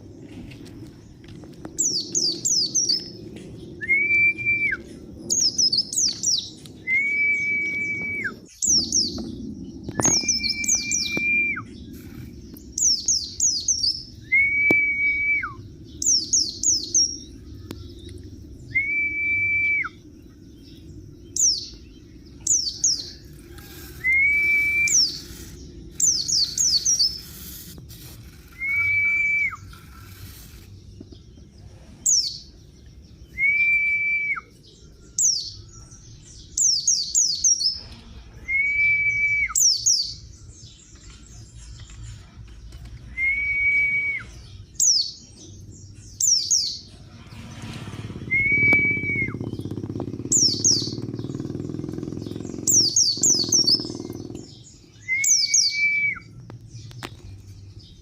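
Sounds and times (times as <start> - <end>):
high falling bird chirps: 0.0 - 58.0
bird whistled note: 6.8 - 8.5, 10.0 - 11.8, 14.2 - 15.6, 18.7 - 20.0, 24.0 - 25.4, 28.3 - 30.2, 38.3 - 40.1, 47.7 - 49.4, 55.0 - 56.3.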